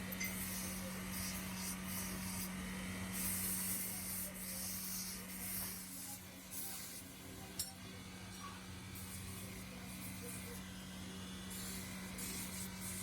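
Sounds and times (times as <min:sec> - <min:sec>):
workshop machine humming: 0:00.0 - 0:13.0
metal rubbing hiss: 0:00.2 - 0:02.5, 0:03.1 - 0:07.0, 0:11.5 - 0:13.0.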